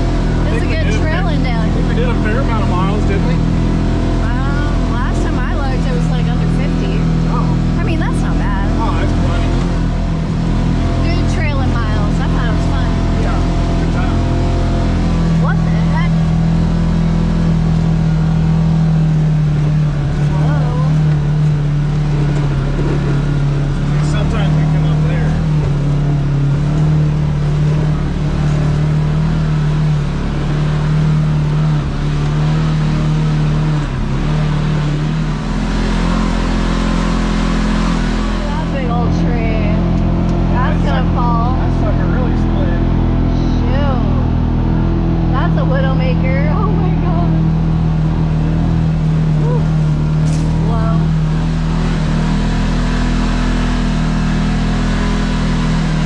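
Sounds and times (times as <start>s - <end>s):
side-by-side engine running: 0.0s - 56.0s.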